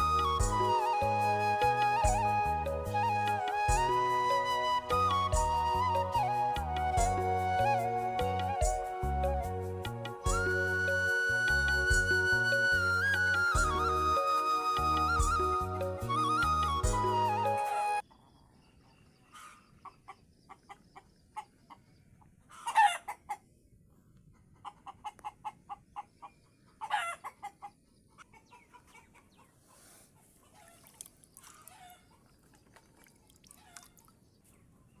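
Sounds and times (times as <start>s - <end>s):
flute music: 0.0s - 18.0s
chicken squawking: 22.5s - 23.4s
chickens clucking: 22.5s - 23.5s, 24.3s - 30.8s.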